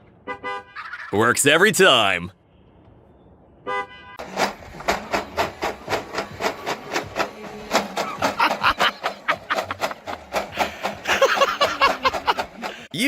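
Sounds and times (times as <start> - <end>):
rhythmic rattling shakes: 4.2 - 13.0.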